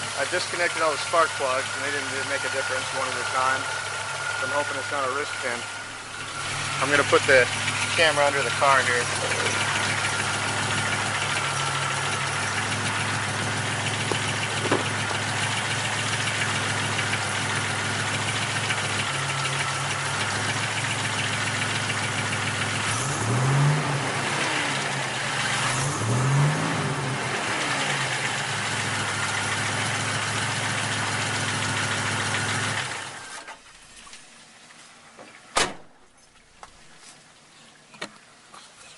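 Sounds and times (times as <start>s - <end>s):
car engine idling with knocking: 0.0s - 33.8s
short thump: 14.0s - 15.0s, 35.6s - 36.8s.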